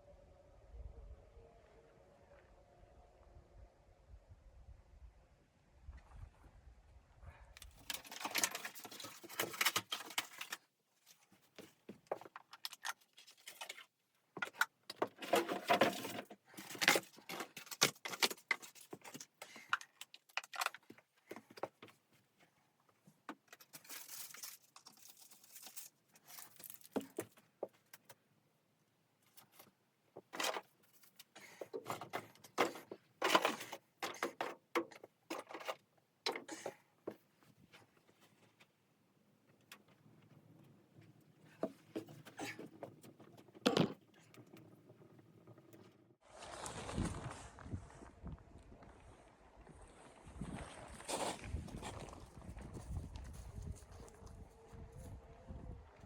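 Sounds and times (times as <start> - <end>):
rustling and clinking of handled things: 7.6 - 28.2, 29.2 - 38.8, 39.4 - 46.0.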